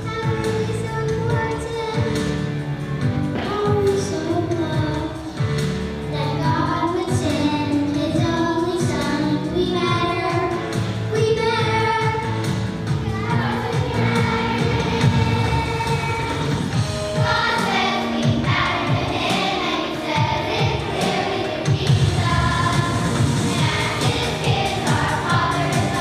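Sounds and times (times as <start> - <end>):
backing track with a beat: 0.0 - 26.0
children and women singing: 13.2 - 26.0.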